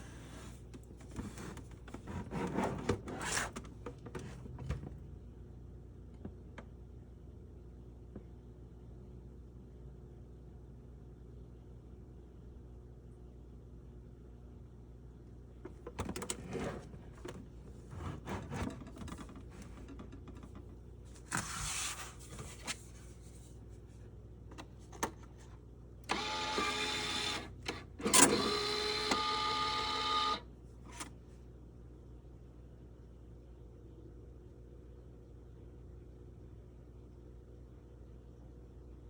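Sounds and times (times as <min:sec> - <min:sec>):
card rustling and knocking: 0:21.2 - 0:23.4.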